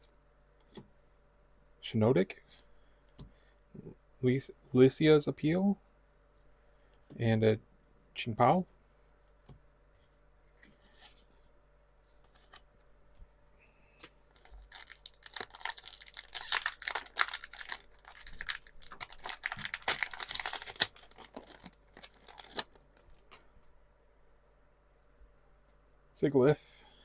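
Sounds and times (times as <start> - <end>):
foil pack tearing and crinkling: 14.4 - 23.2.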